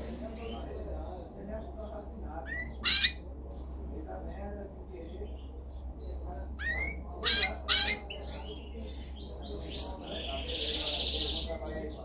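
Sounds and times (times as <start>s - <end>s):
canary singing: 0.3s - 3.7s, 5.0s - 12.0s.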